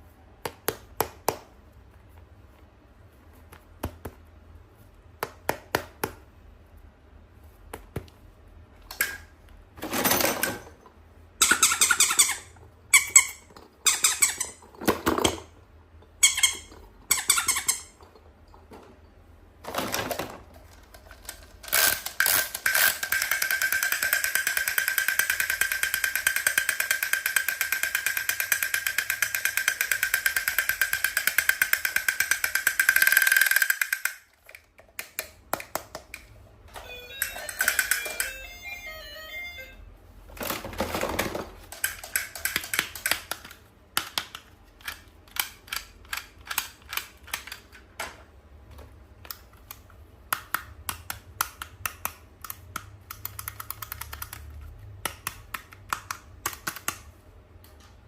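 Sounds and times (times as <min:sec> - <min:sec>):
high beeping notes: 0:36.8 - 0:39.9
sharp clicks and taps: 0:49.2 - 0:57.8.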